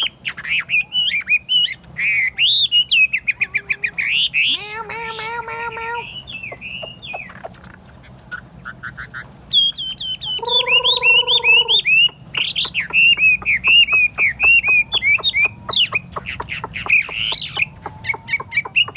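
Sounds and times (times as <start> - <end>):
bird singing whistled notes: 6.0 - 7.4, 8.7 - 18.9.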